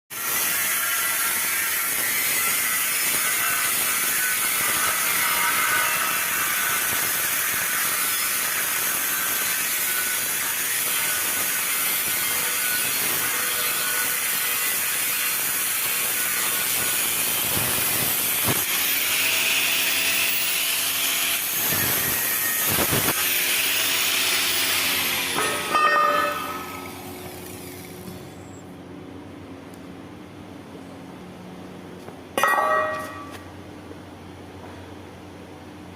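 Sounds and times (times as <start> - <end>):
arc welding hiss: 0.2 - 28.0.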